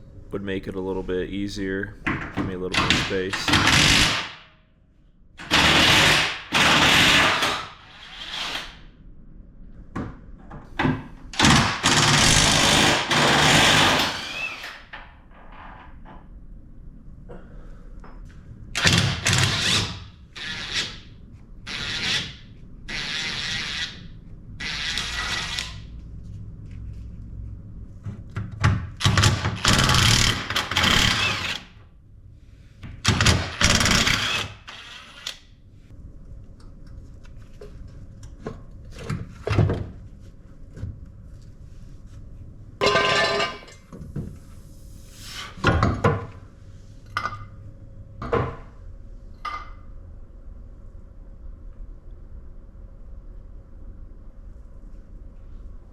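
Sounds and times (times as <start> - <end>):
power tool bursts: 11.4 - 14.8, 29.0 - 31.7, 33.1 - 35.3.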